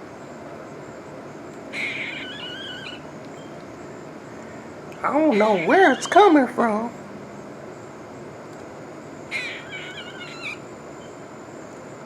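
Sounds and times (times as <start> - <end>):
steady background hiss: 0.0 - 12.0
bird crying call: 1.7 - 3.6, 5.1 - 6.5, 9.3 - 11.2.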